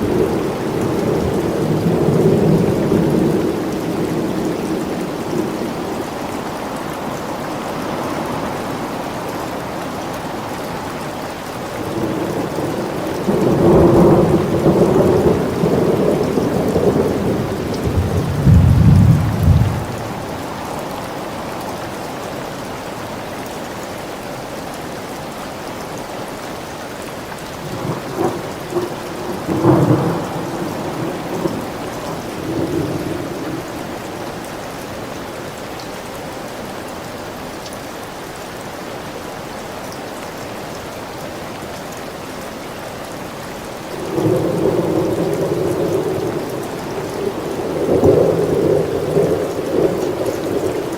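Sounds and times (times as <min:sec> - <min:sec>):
steady rain: 0:00.0 - 0:50.9
rolling thunder: 0:11.9 - 0:20.5, 0:27.7 - 0:33.8.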